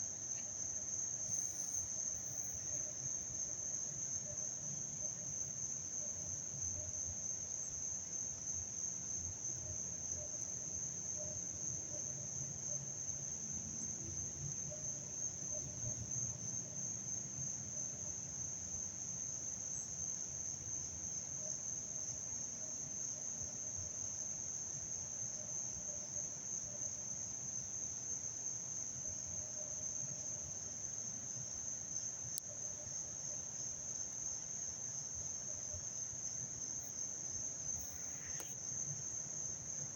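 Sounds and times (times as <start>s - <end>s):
insects trilling: 0.0s - 17.9s, 29.3s - 39.9s.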